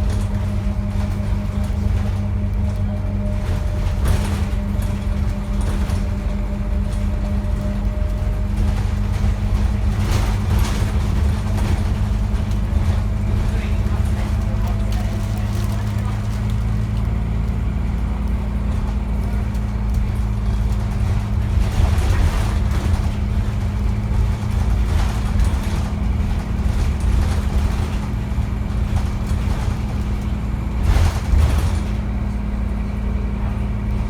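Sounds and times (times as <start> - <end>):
bus engine humming: 0.0 - 34.0.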